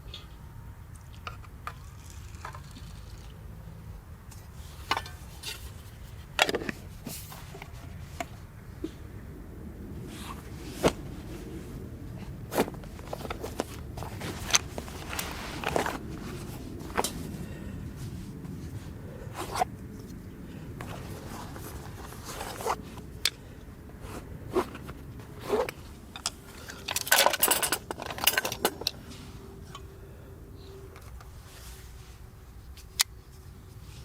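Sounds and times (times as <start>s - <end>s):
clicks and knocks of handling: 24.6s - 29.1s.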